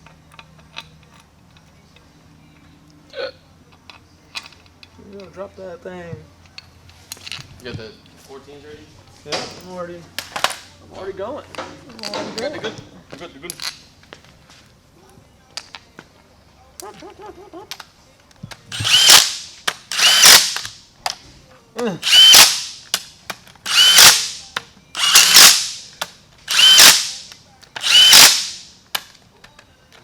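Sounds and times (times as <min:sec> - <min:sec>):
impact wrench bursts: 0:18.7 - 0:20.8, 0:22.0 - 0:23.1, 0:23.7 - 0:28.8.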